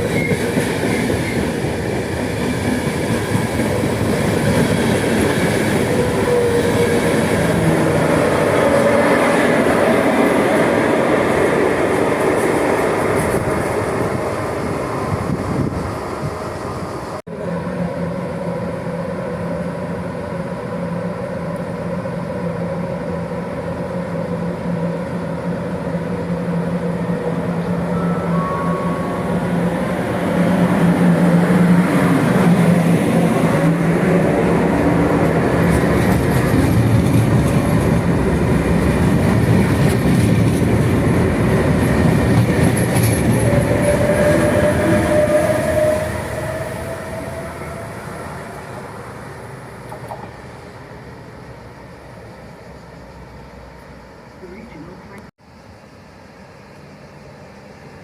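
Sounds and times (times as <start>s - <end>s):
rising whine: 14.9s - 36.1s.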